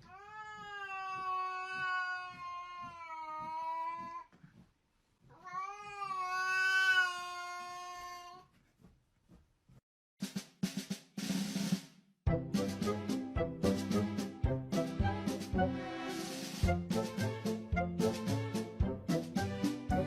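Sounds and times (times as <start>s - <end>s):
cat yowling: 0.0s - 4.3s, 5.3s - 8.4s.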